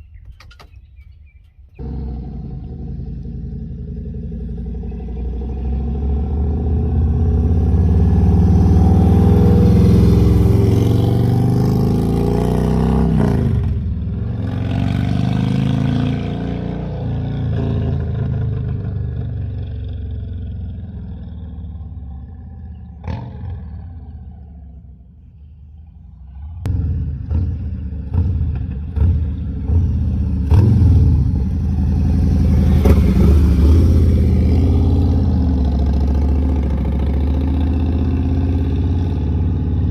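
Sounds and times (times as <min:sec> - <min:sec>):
motorcycle engine revving: 0:01.8 - 0:25.3, 0:26.2 - 0:39.9.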